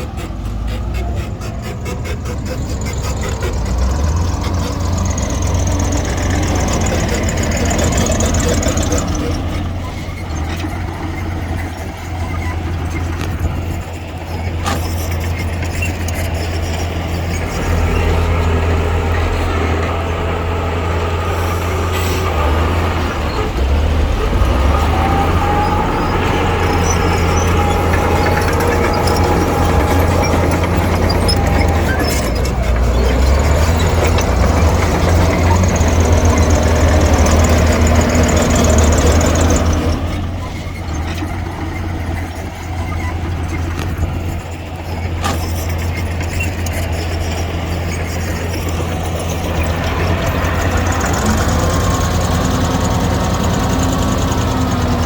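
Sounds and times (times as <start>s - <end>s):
diesel engine droning under load: 0.0s - 55.0s
thin squeal: 24.5s - 54.8s.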